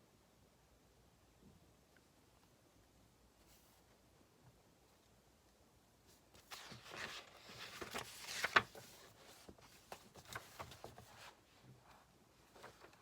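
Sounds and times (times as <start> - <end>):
paper rustling: 6.2 - 13.0.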